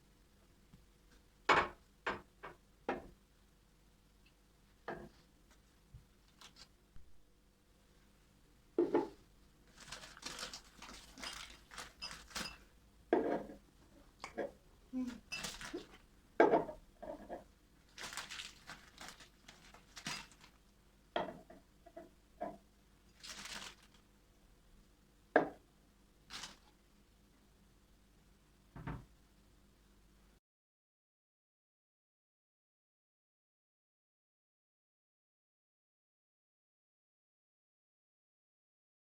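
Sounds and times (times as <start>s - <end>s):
dishes and utensils clinking: 11.0s - 13.6s, 15.2s - 17.4s.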